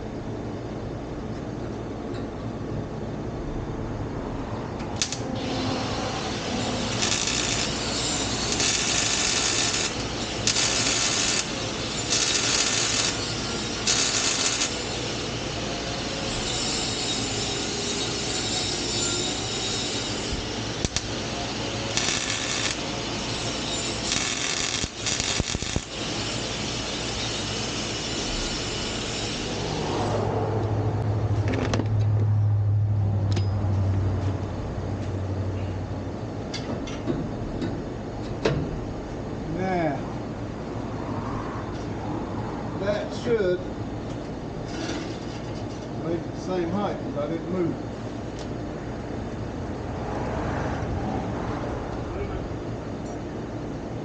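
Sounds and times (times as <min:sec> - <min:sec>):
welding crackle bursts: 0:05.0 - 0:15.6, 0:20.2 - 0:29.6.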